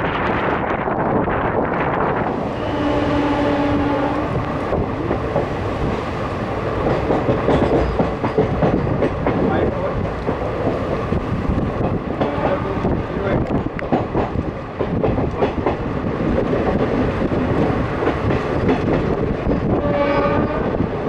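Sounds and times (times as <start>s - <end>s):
train wheels clicking and rattling: 4.3s - 21.0s.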